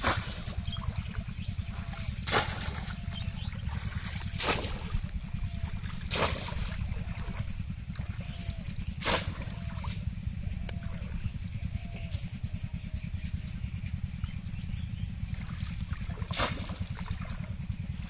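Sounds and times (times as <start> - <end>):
low rumble: 0.0 - 18.0
basket splashing into water: 2.2 - 2.9, 6.1 - 6.8, 16.2 - 16.9.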